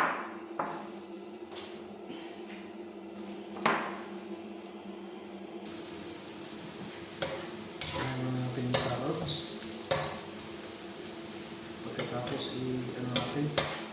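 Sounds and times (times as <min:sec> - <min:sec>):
metal pots and pans clanking: 0:05.7 - 0:10.3, 0:11.9 - 0:13.9.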